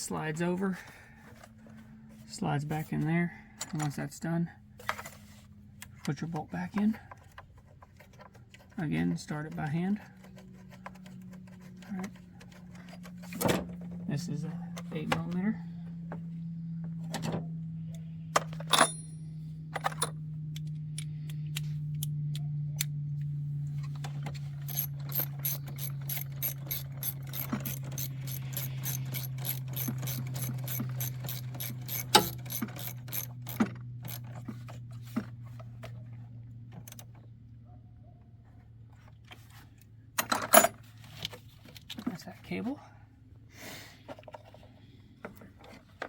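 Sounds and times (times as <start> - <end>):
steady low hum: 0.0 - 41.6
socket ratchet clicking: 24.6 - 34.4.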